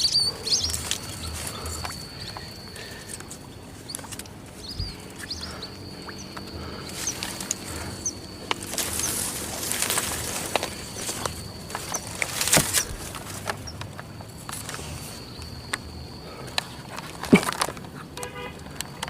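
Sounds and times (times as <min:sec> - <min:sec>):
scattered clicks: 0:00.0 - 0:19.0
small birds chirping: 0:00.0 - 0:19.0
steady high-pitched whine: 0:00.0 - 0:19.0.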